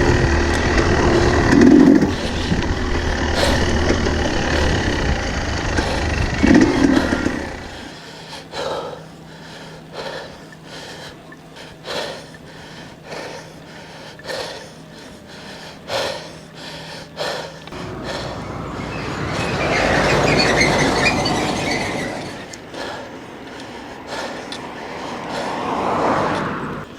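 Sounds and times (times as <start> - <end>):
low electric motor hum: 0.0 - 8.0, 17.7 - 22.6
motorbike engine running: 0.0 - 8.0, 17.8 - 22.6.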